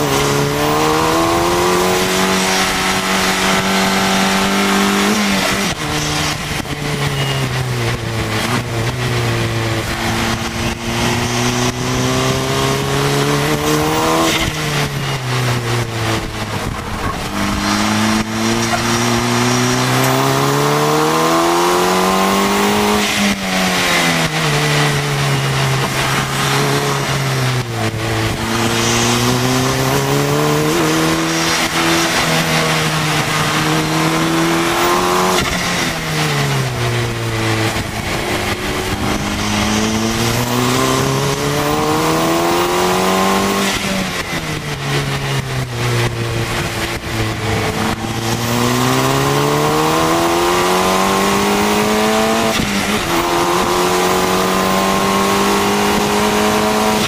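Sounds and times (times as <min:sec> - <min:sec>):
wind rush: 0:00.0 - 0:21.5, 0:22.5 - 0:57.0
car engine accelerating: 0:00.0 - 0:57.0.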